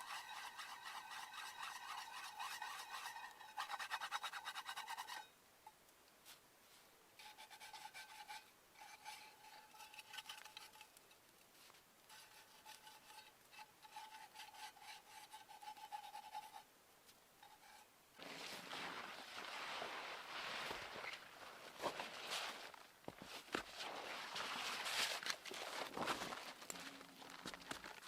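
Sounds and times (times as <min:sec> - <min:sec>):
rapid scraping strokes: 0:00.0 - 0:05.3, 0:12.1 - 0:16.7.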